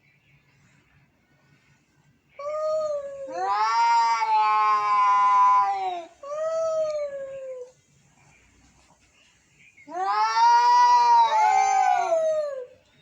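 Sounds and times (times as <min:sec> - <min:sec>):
cat yowling: 0:02.4 - 0:07.7, 0:09.9 - 0:12.8.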